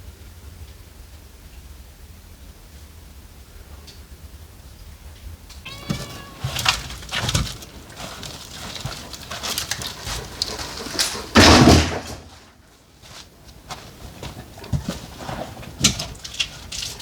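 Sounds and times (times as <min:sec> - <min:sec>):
cat meowing: 0:05.5 - 0:09.1
knocks and rustling: 0:05.6 - 0:17.0.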